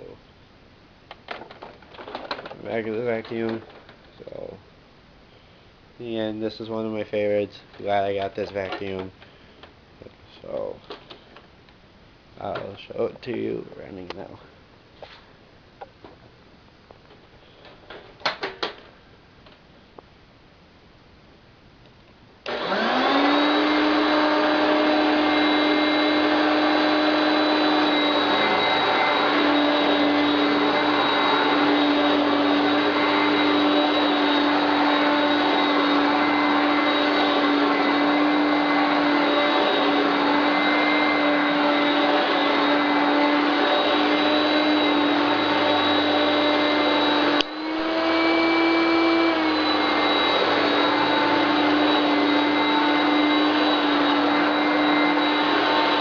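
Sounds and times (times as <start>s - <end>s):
vacuum cleaner motor whining: 22.4s - 56.0s.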